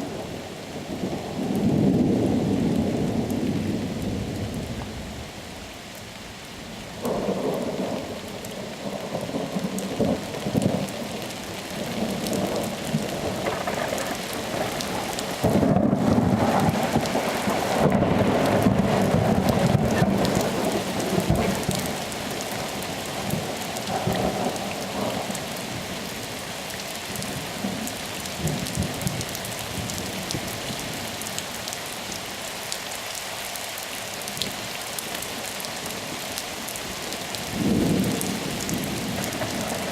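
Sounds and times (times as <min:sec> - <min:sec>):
steady rain falling: 0:00.0 - 0:39.9
rolling thunder: 0:07.0 - 0:25.4, 0:37.5 - 0:39.9.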